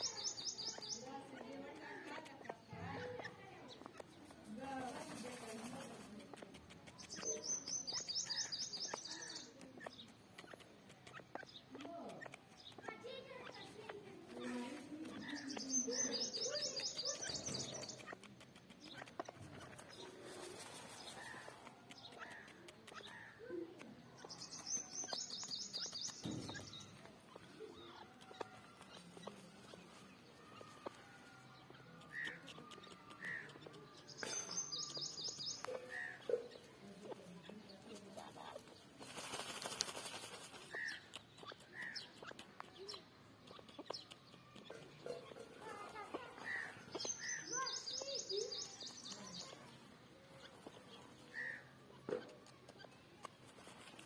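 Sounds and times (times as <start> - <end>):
bird clicks: 0.0 - 4.5, 5.3 - 54.0
high bird chirps: 0.0 - 4.5, 6.3 - 54.0
sharp ticks and scratching: 0.0 - 54.0
rustling: 4.4 - 6.3, 19.4 - 21.7.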